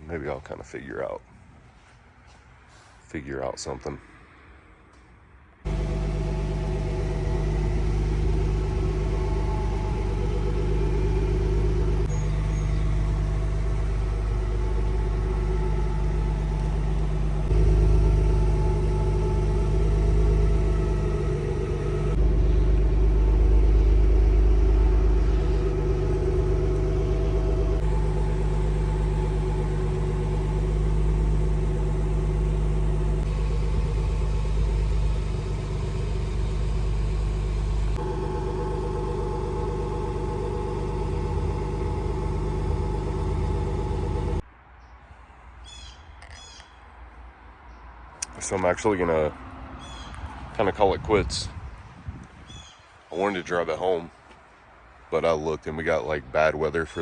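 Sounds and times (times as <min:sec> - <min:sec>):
car engine running: 0:05.7 - 0:44.4.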